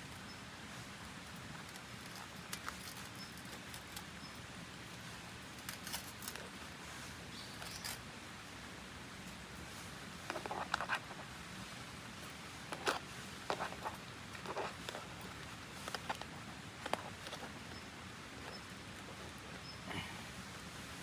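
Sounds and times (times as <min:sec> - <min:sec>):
objects handled clicking and tapping: 0:10.2 - 0:11.2, 0:12.7 - 0:19.7.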